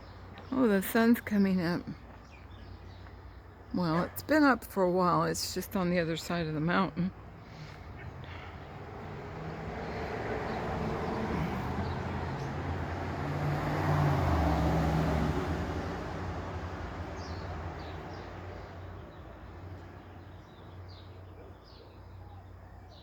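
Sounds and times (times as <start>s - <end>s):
motor vehicle passing by: 7.2s - 21.8s.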